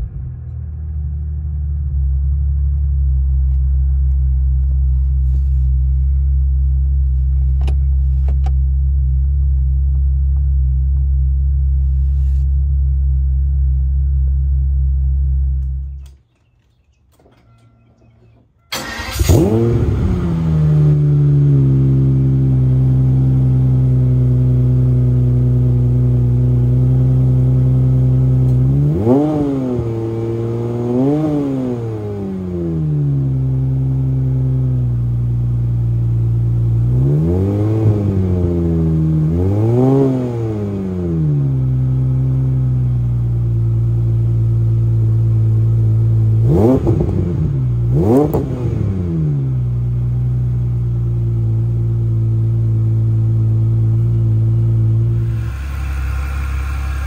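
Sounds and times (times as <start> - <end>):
car engine idling: 0.0 - 28.8, 47.3 - 57.0
engine throttle blips: 15.3 - 24.1, 54.0 - 57.0.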